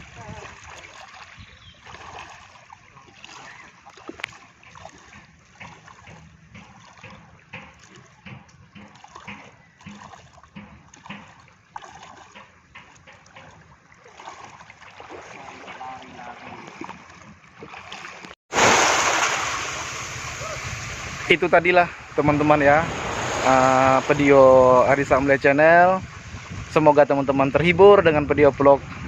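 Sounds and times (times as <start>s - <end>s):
wind and waves rushing: 0.0s - 6.3s, 14.2s - 29.0s
seawater splashing: 0.0s - 27.1s.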